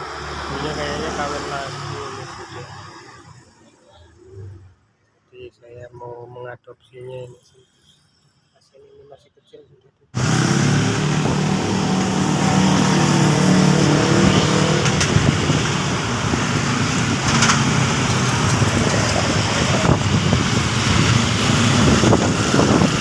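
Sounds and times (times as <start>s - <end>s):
vehicle engine running: 10.2s - 23.0s.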